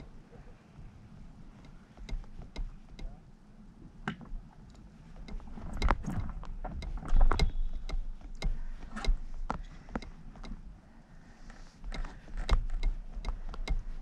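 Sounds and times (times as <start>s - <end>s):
clicks and knocks of gear: 4.1s - 10.6s.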